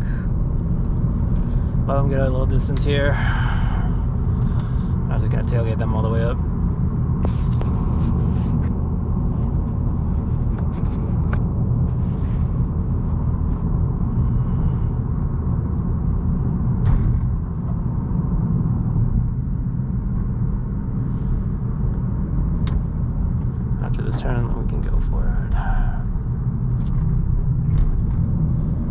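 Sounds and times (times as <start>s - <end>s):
car engine and tyres rumbling: 0.0s - 28.9s.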